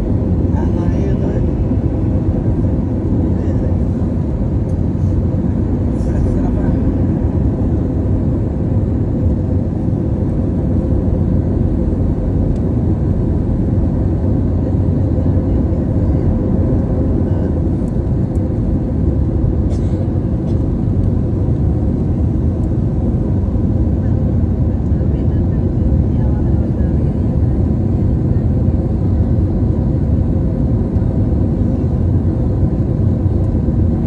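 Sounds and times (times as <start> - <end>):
airliner cabin rumble: 0.0 - 34.0.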